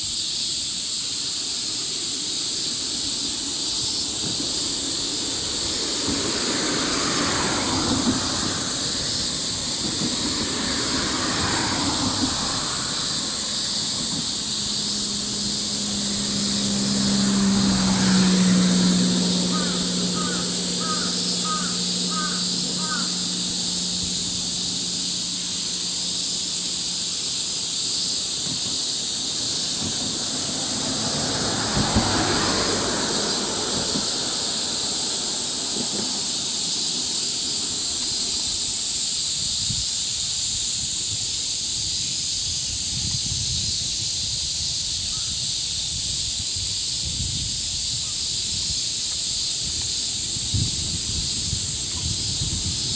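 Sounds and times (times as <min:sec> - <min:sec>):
cicadas droning: 0:00.0 - 0:52.9.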